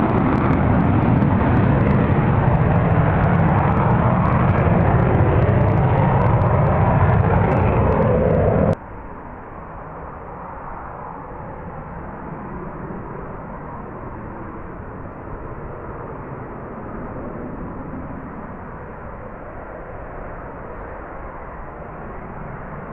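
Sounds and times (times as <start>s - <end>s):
jet engine running: 0.0s - 8.8s.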